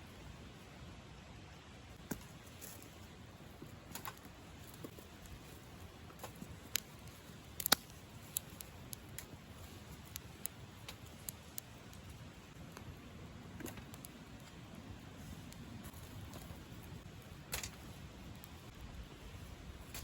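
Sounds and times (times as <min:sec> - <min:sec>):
faint low hiss: 0:00.0 - 0:20.0
small clicks and taps: 0:06.2 - 0:12.9.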